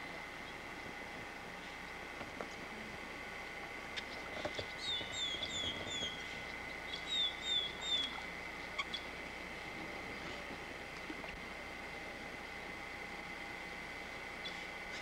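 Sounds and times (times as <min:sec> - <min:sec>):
high-pitched hum: 0:00.0 - 0:15.0
songbird whistling: 0:04.8 - 0:06.3, 0:06.9 - 0:08.1.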